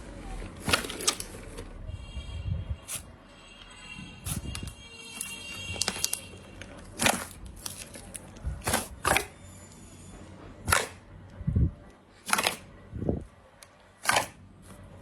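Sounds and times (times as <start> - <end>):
slime crackling pops: 7.0 - 7.8, 10.7 - 11.0, 12.3 - 12.6, 14.0 - 14.4.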